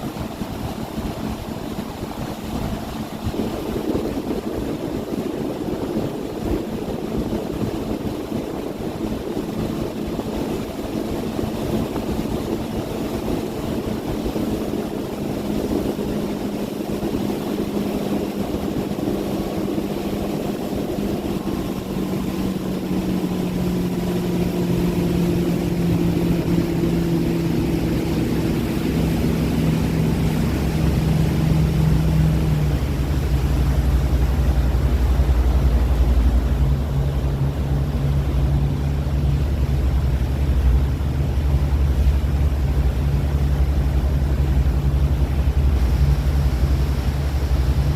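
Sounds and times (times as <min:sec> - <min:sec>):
motorboat engine humming: 0:00.0 - 0:47.9.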